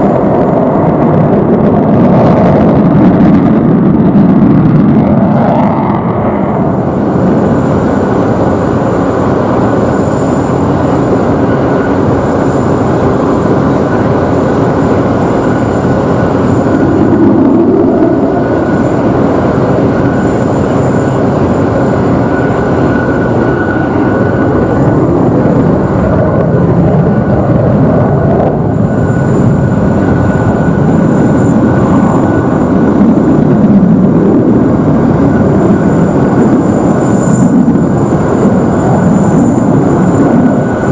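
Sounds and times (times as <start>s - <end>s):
fighter jet engines roaring: 0.0s - 40.9s.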